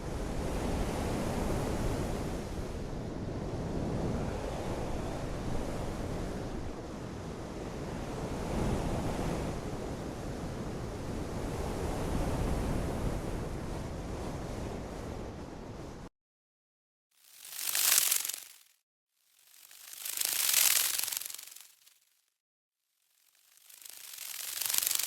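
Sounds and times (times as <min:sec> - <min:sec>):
rushing wind or water: 0:00.0 - 0:16.1.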